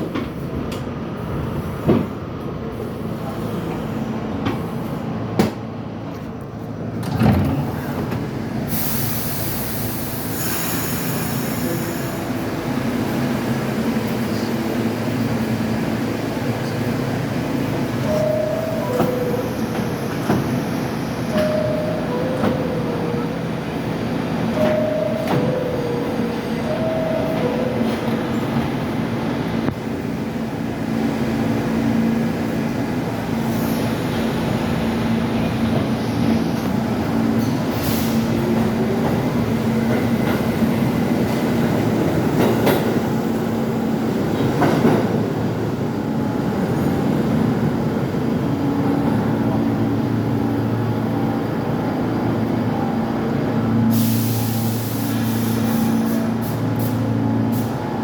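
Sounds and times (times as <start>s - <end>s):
subway train rumbling on track: 0.0s - 58.0s
rail clicks: 16.4s - 29.8s, 34.1s - 47.9s.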